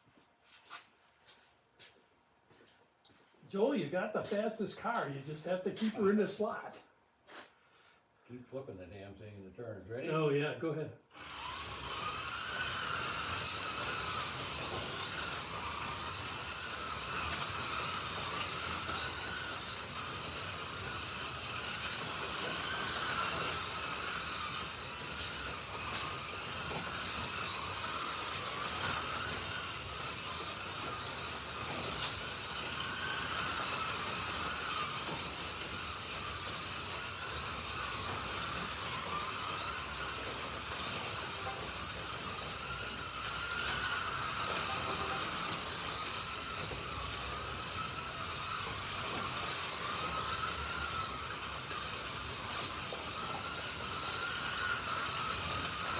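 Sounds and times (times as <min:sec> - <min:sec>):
slot car motors whining: 0:11.1 - 0:55.9.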